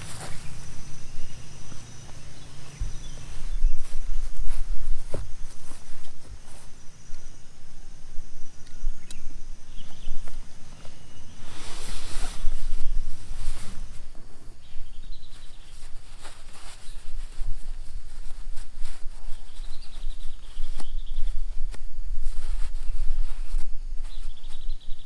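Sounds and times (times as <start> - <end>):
wind rumble on microphone: 0.0 - 25.0.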